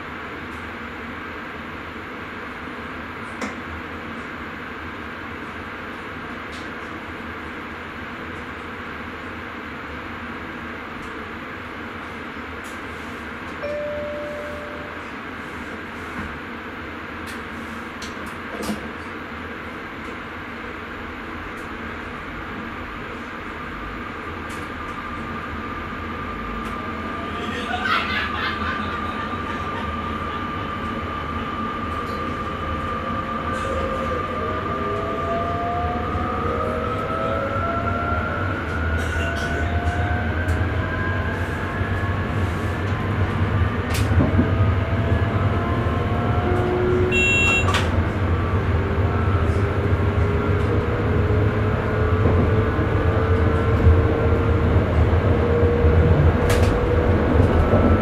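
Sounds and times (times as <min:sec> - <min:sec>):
train wheels rumbling on rails: 0:00.0 - 0:58.0
short electronic beep: 0:13.6 - 0:15.2, 0:47.1 - 0:47.8.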